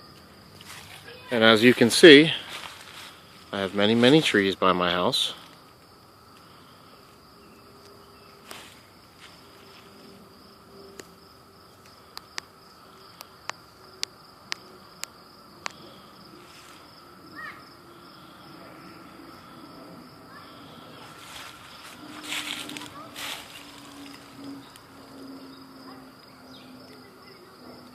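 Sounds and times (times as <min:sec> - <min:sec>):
insect chorus drone: 0:00.0 - 0:27.9.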